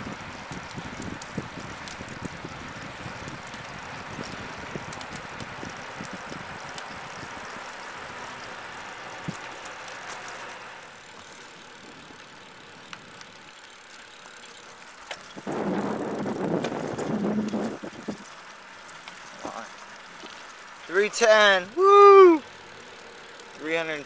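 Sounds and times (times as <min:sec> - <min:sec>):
wind and road noise: 0:00.0 - 0:24.0.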